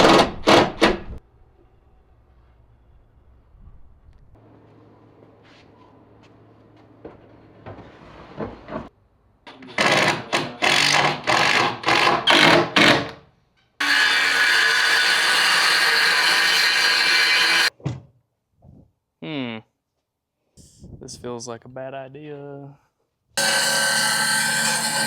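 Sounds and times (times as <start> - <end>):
power tool cutting wood: 9.7 - 13.0, 13.8 - 17.7, 23.4 - 25.0.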